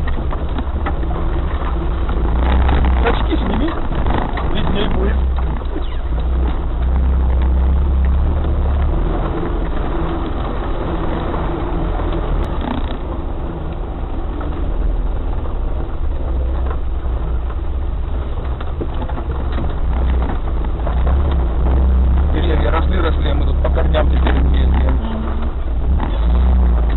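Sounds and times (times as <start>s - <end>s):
knocks and rattles: 0.0s - 26.9s
off-road vehicle engine drone: 0.0s - 26.9s.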